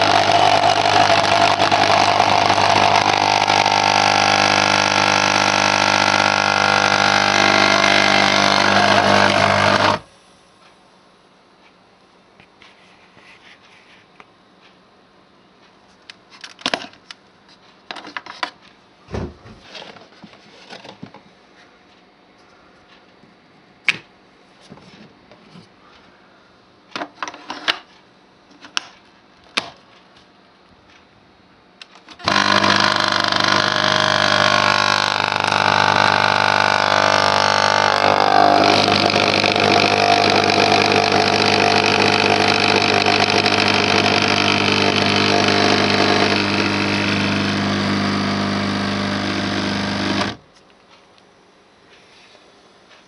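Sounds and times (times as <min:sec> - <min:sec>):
coffee machine pump running: 0:00.0 - 0:10.1, 0:32.2 - 0:50.4.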